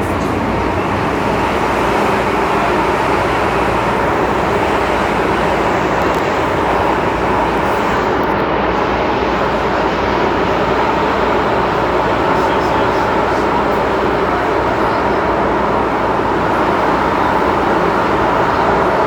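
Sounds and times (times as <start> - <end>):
metro train running noise inside car: 0.0 - 19.0.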